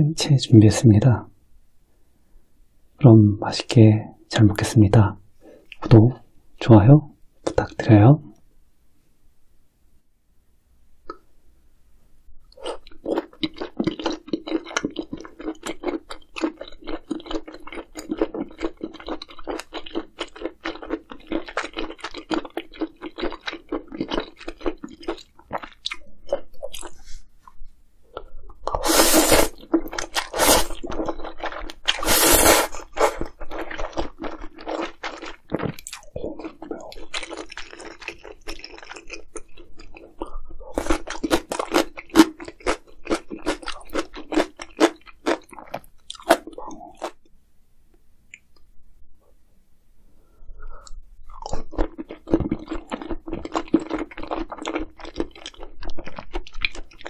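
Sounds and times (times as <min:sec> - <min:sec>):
person crunching food: 0:12.5 - 0:27.2, 0:28.1 - 0:47.3, 0:50.7 - 0:57.0.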